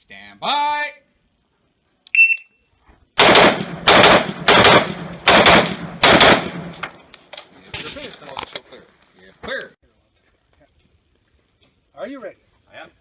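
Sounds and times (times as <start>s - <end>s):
shot timer beep: 2.1s - 2.6s
rifle shots: 3.2s - 6.9s.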